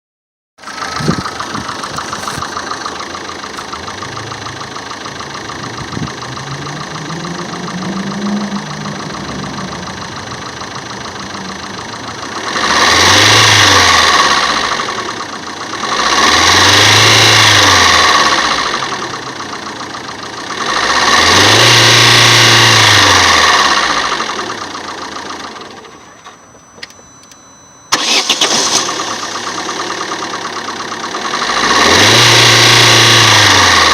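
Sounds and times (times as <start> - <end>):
car engine revving: 0.6 - 25.7, 27.9 - 33.9
car engine starting and idling: 0.6 - 33.9.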